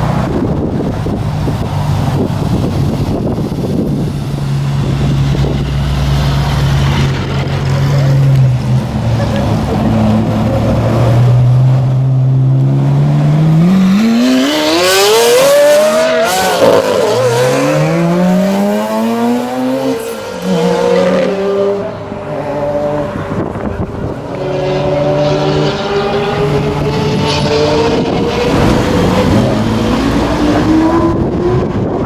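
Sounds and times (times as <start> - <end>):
car engine accelerating hard: 0.0 - 32.0
car engines pulling away: 0.0 - 32.0.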